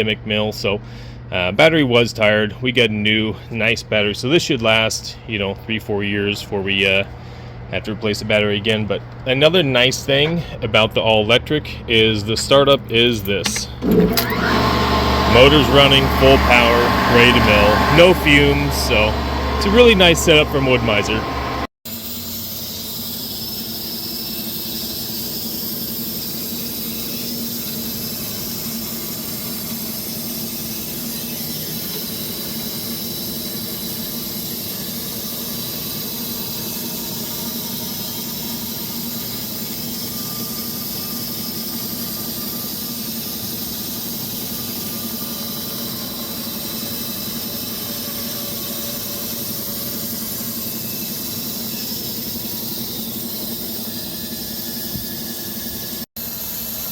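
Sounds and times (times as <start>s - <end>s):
band sawmill blade cutting logs: 13.4s - 56.9s
motor hum: 13.4s - 56.9s.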